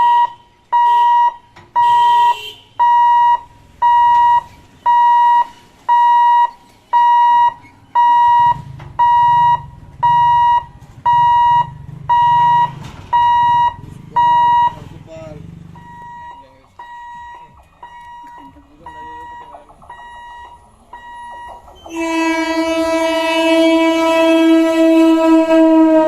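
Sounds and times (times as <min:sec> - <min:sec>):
level crossing alarm beeping: 0:00.0 - 0:15.0, 0:15.7 - 0:24.6
low rumble: 0:07.9 - 0:26.0.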